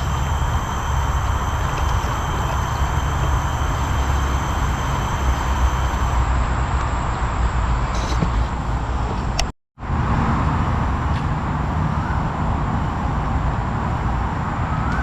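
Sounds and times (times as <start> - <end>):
insects trilling: 0.0 - 8.9
road traffic rumble: 0.0 - 15.0.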